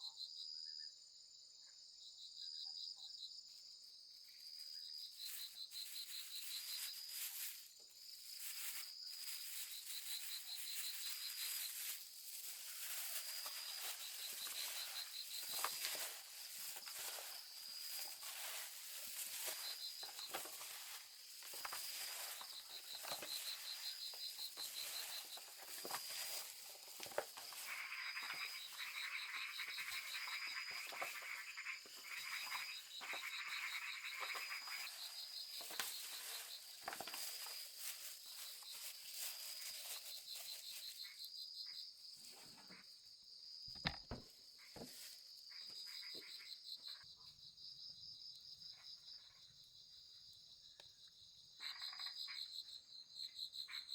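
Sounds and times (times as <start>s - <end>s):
high pulsing insect trill: 3.0s - 53.9s
rustles and clicks: 5.2s - 41.1s
frogs calling: 8.4s - 41.8s, 43.8s - 47.0s, 51.6s - 52.6s.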